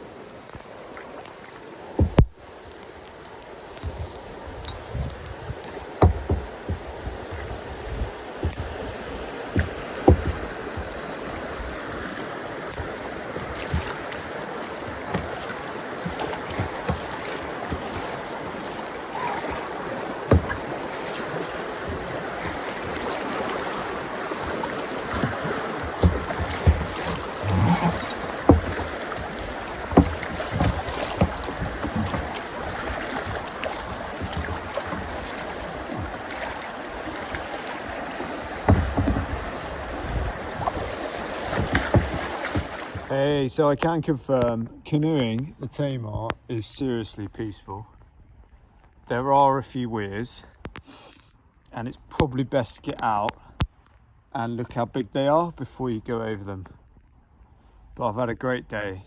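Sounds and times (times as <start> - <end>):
paddle splashes and knocks: 0.0 - 43.4
rushing water: 0.0 - 43.5
wind noise: 3.8 - 15.1.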